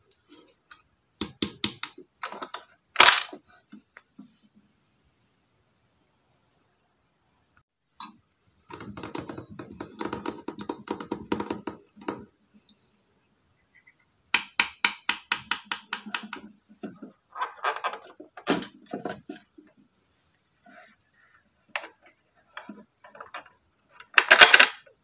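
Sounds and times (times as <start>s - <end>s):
toy vending machine clicking: 24.0s - 24.8s.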